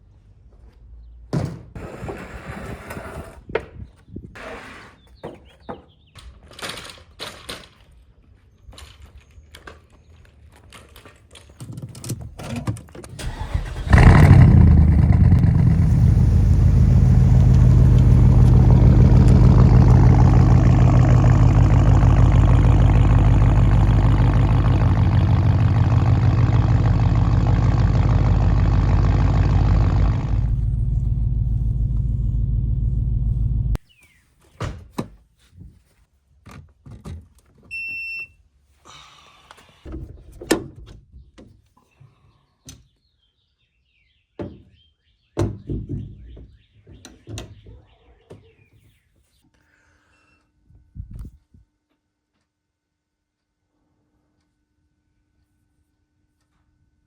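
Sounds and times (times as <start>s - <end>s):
car engine cranking and running: 13.2s - 33.8s.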